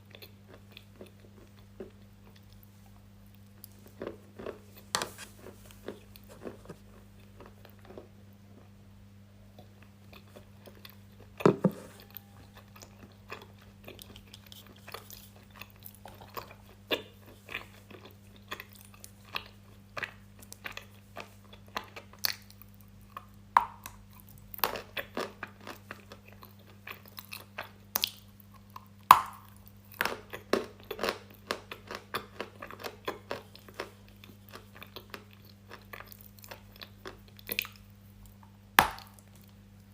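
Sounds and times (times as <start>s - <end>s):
low electrical hum: 0.0s - 39.9s
crunchy chewing and biting: 9.6s - 39.6s.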